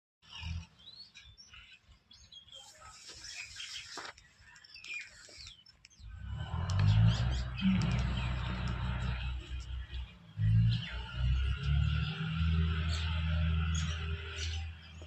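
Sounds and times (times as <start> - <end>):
birds chirping: 0.2 - 15.0
low rumble: 6.1 - 14.0.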